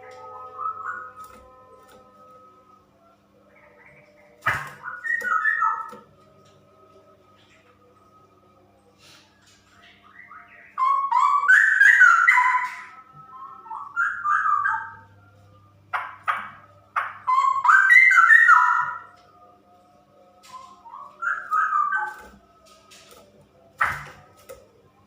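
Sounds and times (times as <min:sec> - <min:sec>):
bird singing whistled phrases: 0:03.5 - 0:06.0, 0:09.9 - 0:15.0, 0:17.2 - 0:19.1, 0:20.5 - 0:22.3.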